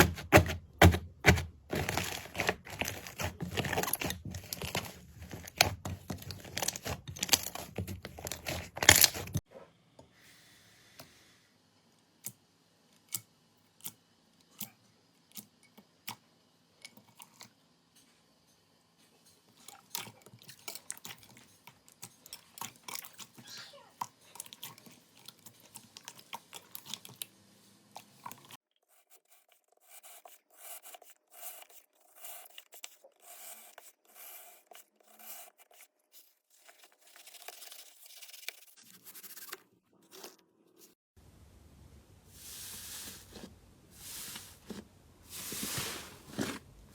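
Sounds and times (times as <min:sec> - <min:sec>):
slime squishing: 0:00.0 - 0:09.4.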